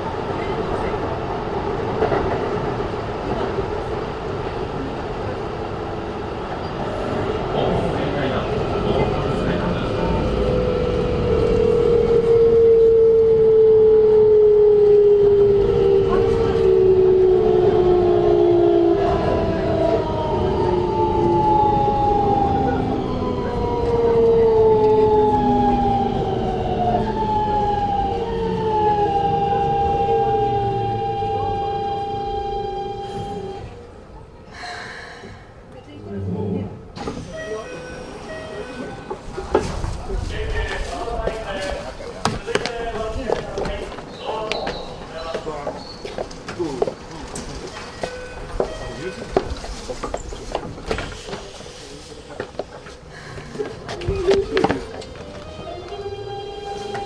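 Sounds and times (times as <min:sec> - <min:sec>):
train wheels rumbling on rails: 0:00.0 - 0:57.0
train motor whining: 0:08.9 - 0:34.0.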